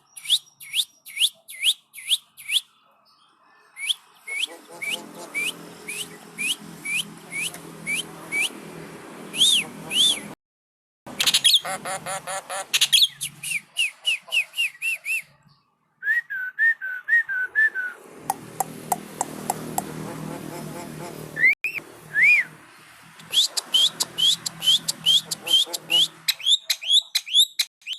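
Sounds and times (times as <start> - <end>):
bird whistled calls: 3.8 - 8.5, 9.3 - 10.4, 12.8 - 15.3, 21.4 - 22.5, 23.2 - 27.9.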